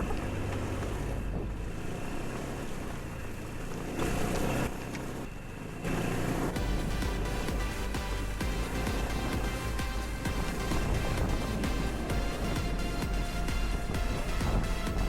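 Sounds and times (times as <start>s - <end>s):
motor running with low hum: 0.0s - 15.0s
wind noise on microphone: 8.6s - 15.0s.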